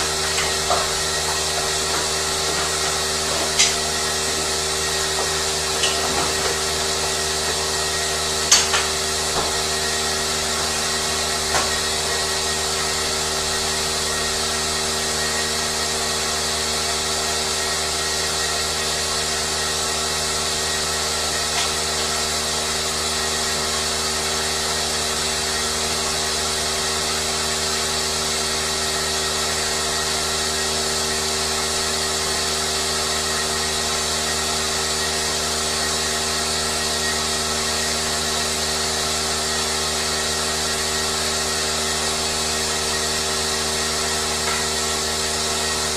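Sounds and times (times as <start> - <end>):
steady mechanical hum: 0.0 - 45.9
sharp clicks and knocks: 0.3 - 3.8, 5.2 - 6.6, 8.5 - 9.6.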